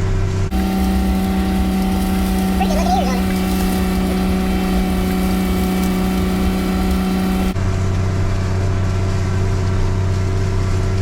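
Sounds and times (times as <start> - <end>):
farm machinery engine running: 0.5 - 7.6.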